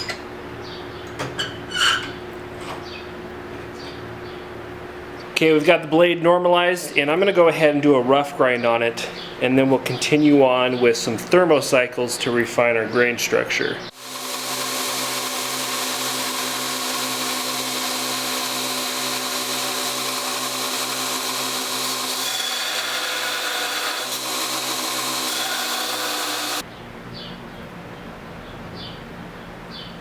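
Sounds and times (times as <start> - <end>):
bird chirp: 3.7 - 4.5, 26.6 - 30.0
belt grinder grinding steel: 13.9 - 26.6.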